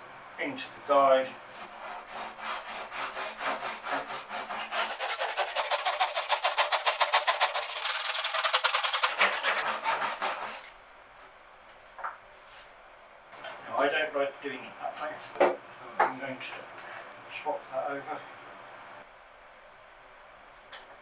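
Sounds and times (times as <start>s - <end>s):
hand saw cutting wood: 1.6s - 10.7s.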